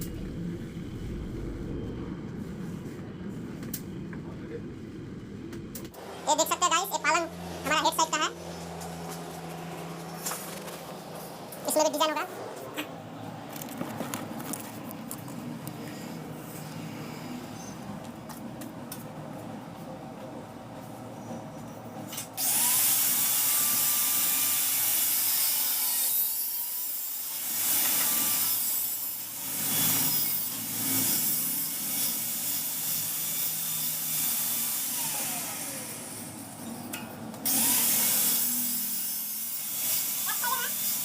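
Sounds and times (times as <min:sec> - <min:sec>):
electric power tool motor: 0:22.4 - 0:36.3, 0:37.4 - 0:41.0.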